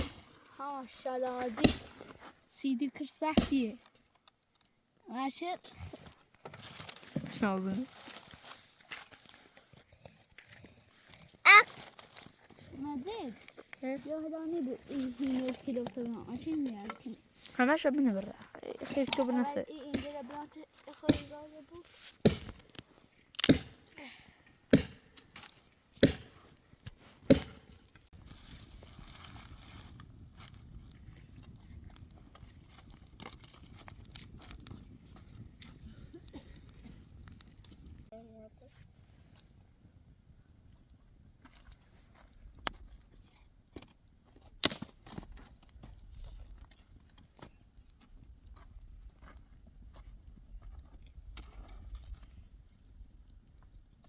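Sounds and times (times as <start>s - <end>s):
axe chopping firewood: 0.0s - 0.3s, 1.6s - 2.1s, 3.3s - 3.8s, 19.8s - 20.3s, 20.9s - 21.4s, 22.2s - 24.0s, 24.7s - 28.0s, 44.6s - 45.2s
donkey hooves on stony ground: 0.0s - 24.0s, 29.8s - 38.0s, 40.7s - 54.0s.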